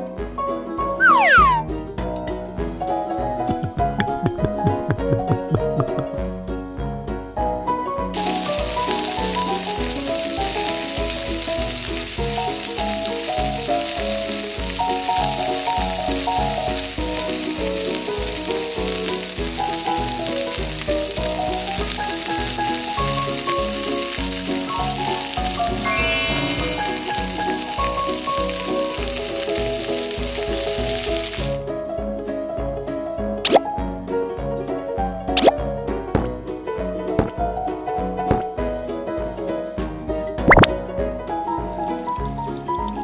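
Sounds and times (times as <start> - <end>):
background music with steady beat: 1.6 - 7.8
patty sizzling in hot oil: 8.2 - 31.7.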